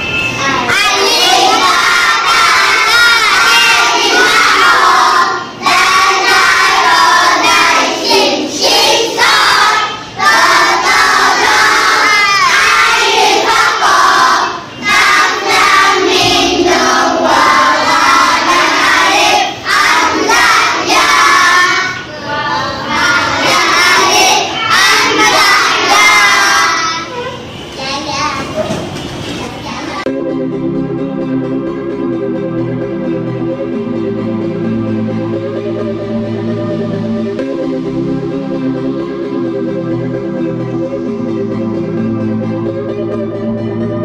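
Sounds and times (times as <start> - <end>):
children singing in unison: 0.4 - 27.3.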